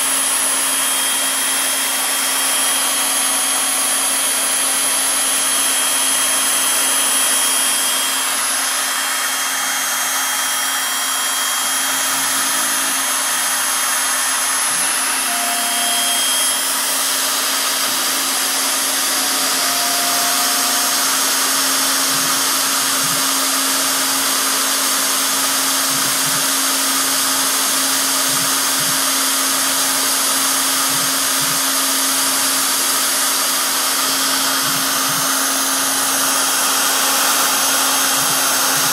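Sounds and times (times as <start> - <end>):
high-pitched spindle motor whir: 0.0 - 38.9
short tones: 15.0 - 16.7.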